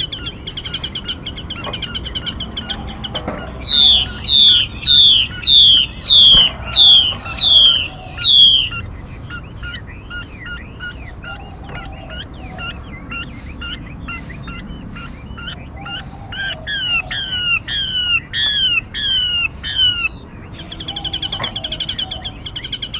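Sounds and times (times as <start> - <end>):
soft quick bird chirps: 0.0 - 12.0
high bird trill: 0.0 - 22.9
downward sliding whistled notes: 3.6 - 8.8.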